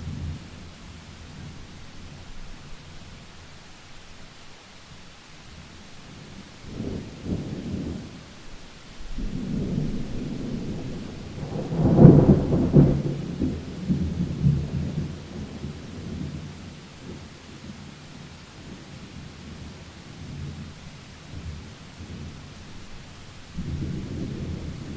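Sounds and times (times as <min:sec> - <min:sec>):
steady rain: 0:00.0 - 0:24.9
thunder rumbling: 0:09.0 - 0:17.3, 0:18.7 - 0:24.9.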